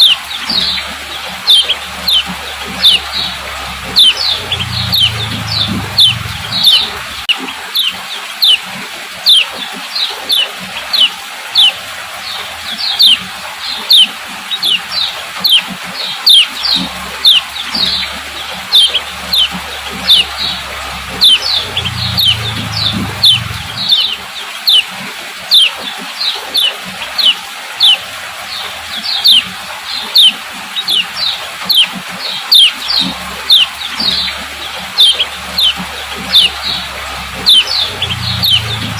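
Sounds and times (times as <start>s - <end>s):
bird high chip notes: 0.0s - 7.3s, 17.0s - 24.2s, 32.5s - 38.9s.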